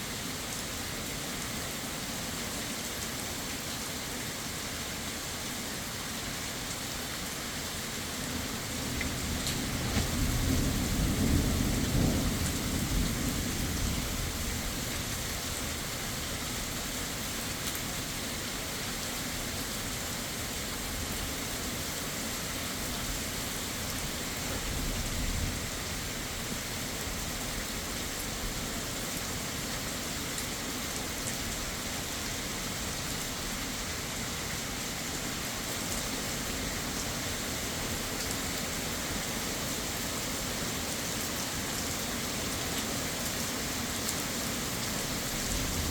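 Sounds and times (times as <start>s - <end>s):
heavy rain: 0.0s - 45.9s
thunder rumble: 9.1s - 14.8s.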